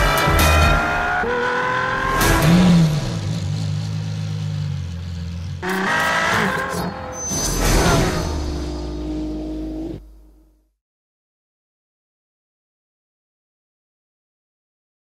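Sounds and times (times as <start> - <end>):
sports car engine revving: 0.0 - 7.1, 8.2 - 10.4.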